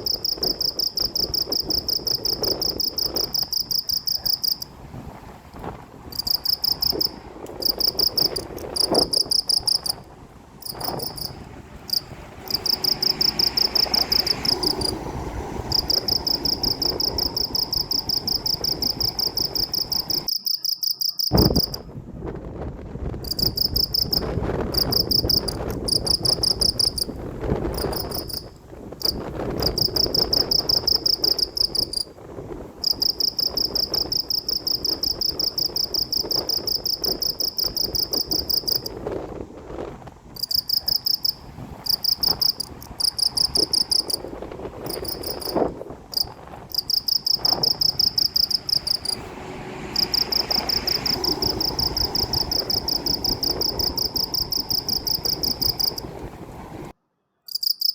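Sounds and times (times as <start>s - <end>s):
crickets chirping: 0.0s - 4.8s, 5.6s - 21.9s, 23.2s - 39.0s, 40.4s - 56.8s, 57.5s - 57.9s
low rushing background: 4.5s - 20.3s, 41.3s - 57.0s.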